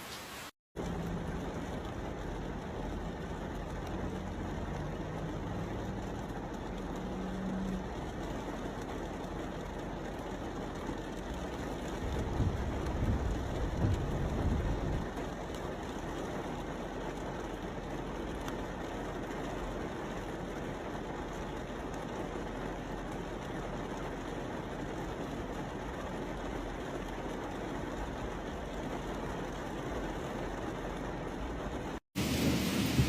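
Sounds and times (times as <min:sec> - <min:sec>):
steady rain hiss: 0:00.0 - 0:33.0.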